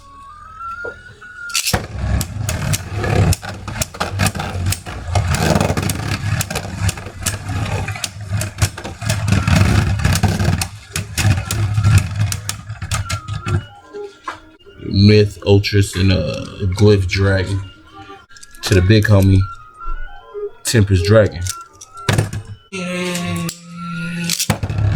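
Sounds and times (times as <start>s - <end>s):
spinning tops whirring: 0.0s - 14.0s
spinning tops clacking: 1.5s - 13.7s.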